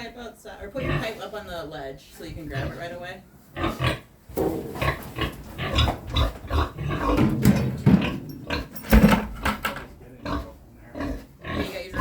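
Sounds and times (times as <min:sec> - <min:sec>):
pig grunting: 0:03.6 - 0:08.8, 0:10.0 - 0:12.0.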